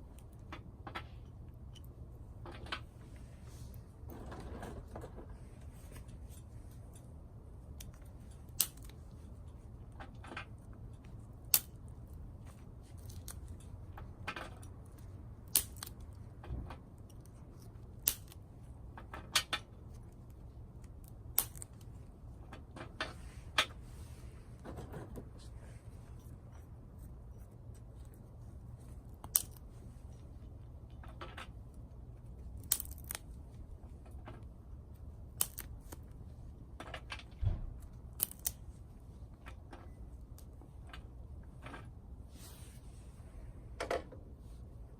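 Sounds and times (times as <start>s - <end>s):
twigs cracking and snapping: 7.6s - 22.9s, 27.6s - 29.8s, 30.9s - 38.8s.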